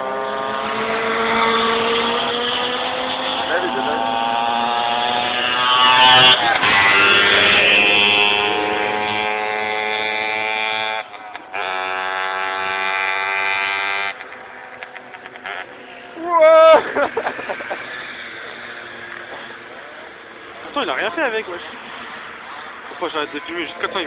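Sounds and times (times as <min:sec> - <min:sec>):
car engine revving hard: 0:00.0 - 0:14.2.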